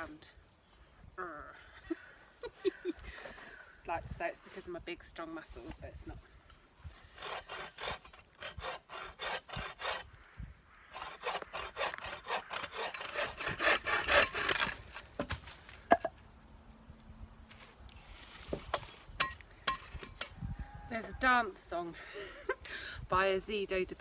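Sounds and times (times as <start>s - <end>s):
hand saw cutting wood: 7.0s - 10.1s, 10.9s - 15.0s.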